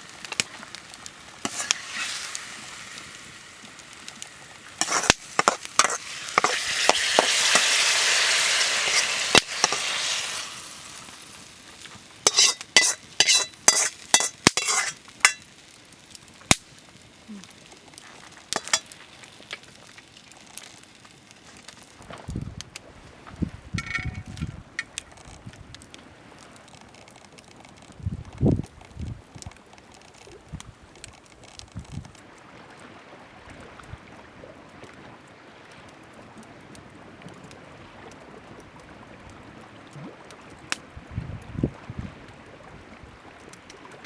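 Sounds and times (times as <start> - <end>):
food sizzling in pan: 0.0 - 21.8
utensil scraping pan: 1.4 - 2.2, 4.8 - 10.5, 12.2 - 15.4, 18.6 - 18.9, 23.8 - 24.5.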